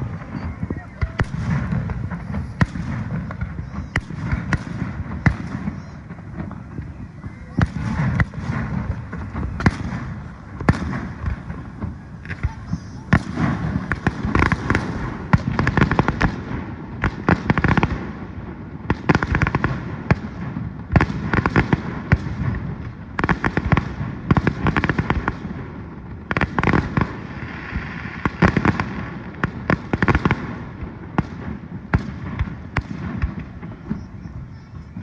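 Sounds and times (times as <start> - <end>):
fireworks bangs and pops: 0.0 - 35.0.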